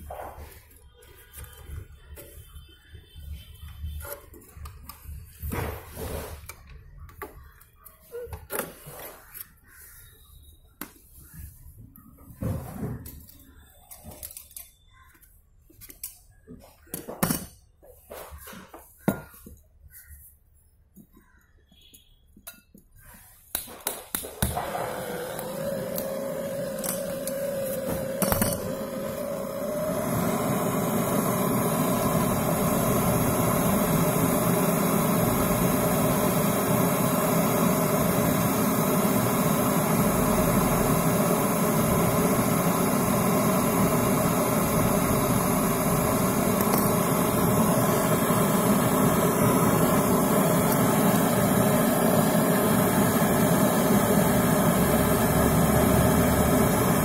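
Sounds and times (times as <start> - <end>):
gas torch burning: 23.5 - 57.0.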